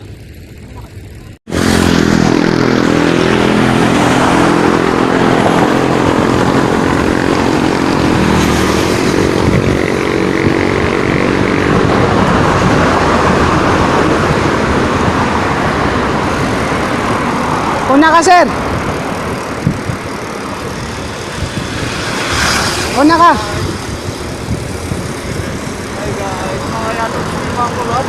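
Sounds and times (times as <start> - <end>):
vehicle engine running: 0.0 - 12.4
rushing road noise: 0.0 - 28.0.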